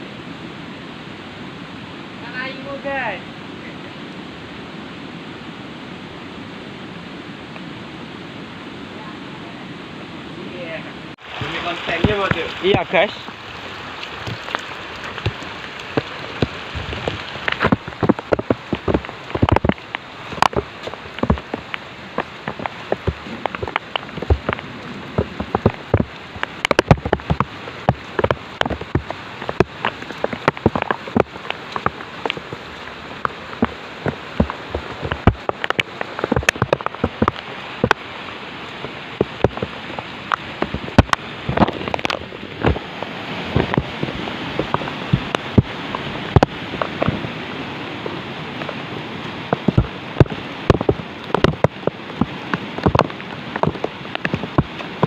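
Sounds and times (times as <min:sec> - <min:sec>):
rain falling: 0:00.0 - 0:55.0
sharp raindrop hits: 0:11.1 - 0:47.4, 0:48.0 - 0:55.0.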